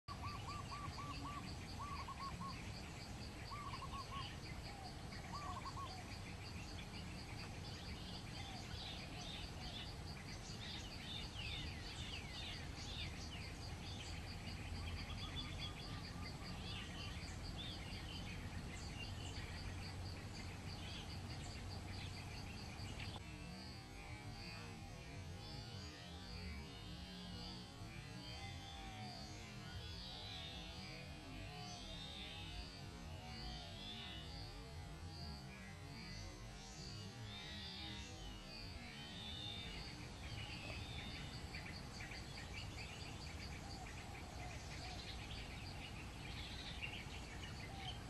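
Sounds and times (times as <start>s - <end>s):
wild birds calling: 0.1s - 23.2s, 38.8s - 48.0s.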